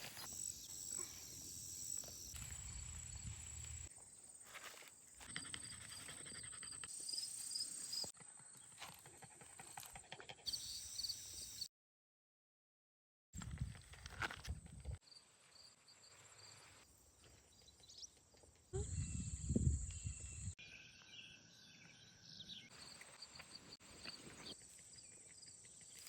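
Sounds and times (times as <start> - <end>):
footsteps on outdoor trail: 0.0 - 6.1
insects chirping: 0.0 - 8.5, 10.5 - 11.6.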